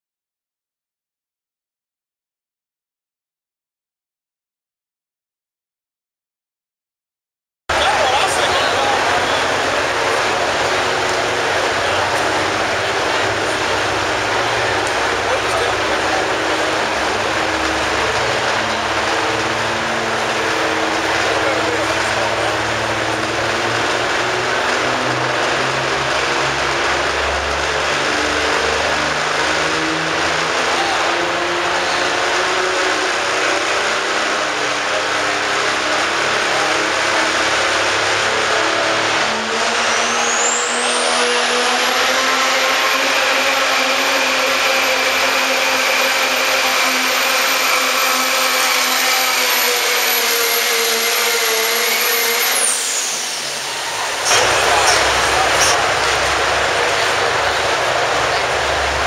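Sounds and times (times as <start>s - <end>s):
diesel truck engine at full power: 7.7s - 59.0s
high turbo whistle: 46.0s - 58.8s.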